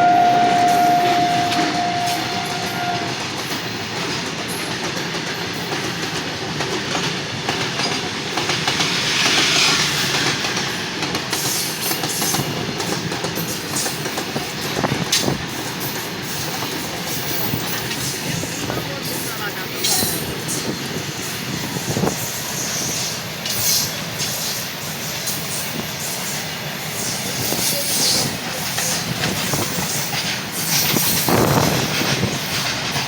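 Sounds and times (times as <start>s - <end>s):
train horn: 0.0s - 3.2s
train rumbling and clattering: 0.0s - 33.0s
hiss: 8.7s - 10.3s.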